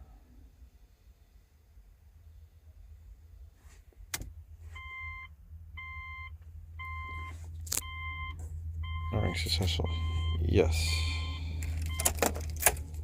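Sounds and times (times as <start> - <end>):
low hum: 0.0 - 13.0
electronic beeping: 4.8 - 12.2.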